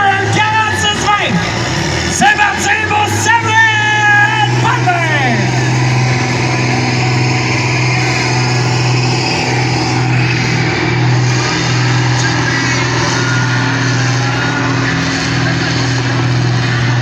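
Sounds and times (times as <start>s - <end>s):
tractor engine at high revs: 0.0s - 17.0s.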